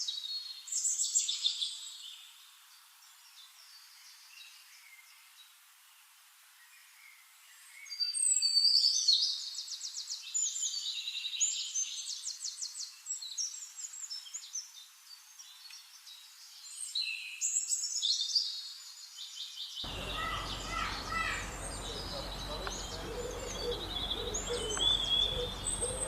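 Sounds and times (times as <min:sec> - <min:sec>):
short bird calls: 0:19.9 - 0:26.0
songbird singing trills: 0:19.9 - 0:26.0.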